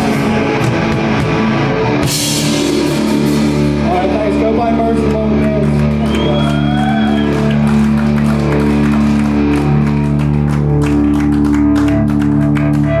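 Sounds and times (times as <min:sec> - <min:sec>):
live band playing: 0:00.0 - 0:13.0
sustained guitar chords: 0:00.0 - 0:13.0.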